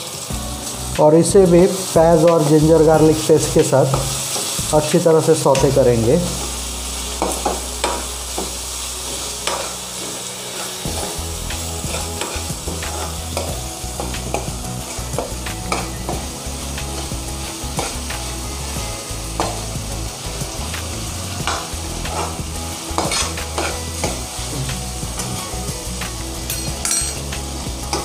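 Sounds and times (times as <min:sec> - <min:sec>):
onion sizzling in hot oil: 0:00.0 - 0:28.0
steel spoon scraping a pan: 0:06.3 - 0:16.2, 0:21.4 - 0:25.4, 0:26.5 - 0:27.2.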